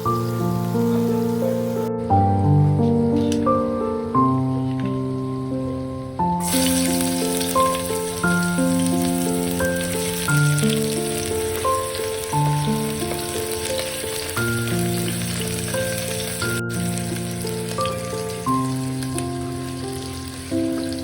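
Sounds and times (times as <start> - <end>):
food sizzling in a pan: 0.0 - 1.9, 6.3 - 21.0
background music chords: 0.0 - 21.0.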